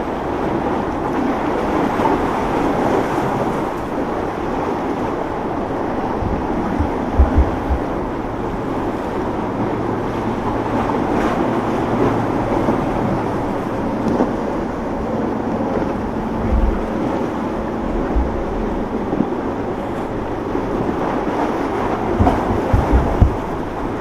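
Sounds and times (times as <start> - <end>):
boat engines running: 0.0 - 24.0
wind thumps on microphone: 6.0 - 9.0, 12.0 - 24.0.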